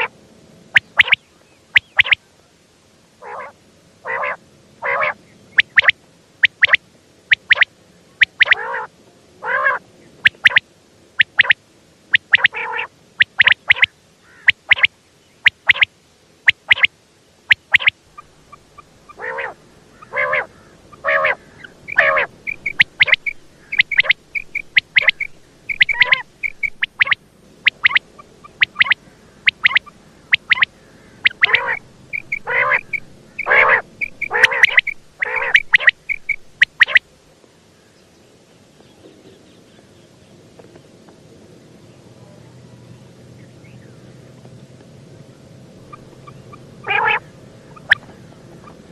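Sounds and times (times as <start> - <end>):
quail calling: 0.7 - 2.2, 3.2 - 10.6, 11.2 - 15.9, 16.5 - 16.9, 17.5 - 37.1, 45.8 - 48.9.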